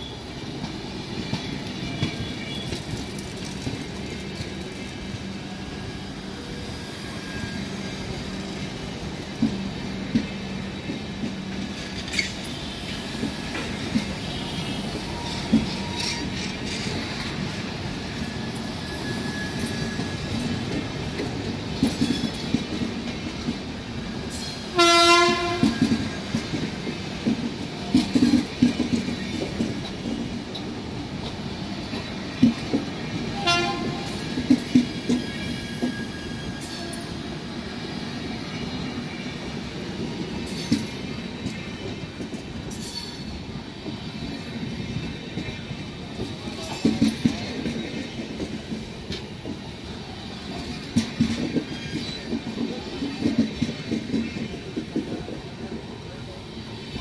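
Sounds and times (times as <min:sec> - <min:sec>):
train wheels clattering on rails: 0:00.0 - 0:56.2
train horn: 0:14.2 - 0:16.2, 0:24.7 - 0:25.9, 0:33.4 - 0:34.2.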